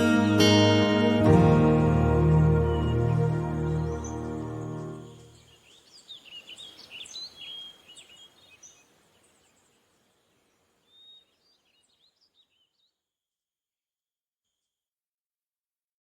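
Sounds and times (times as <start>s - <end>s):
guitar music: 0.0s - 5.3s
small birds chirping: 2.2s - 13.0s.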